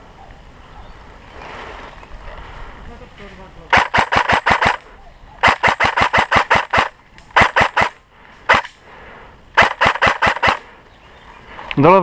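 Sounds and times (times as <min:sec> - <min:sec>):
airsoft guns firing: 0:03.7 - 0:08.7, 0:09.6 - 0:10.7.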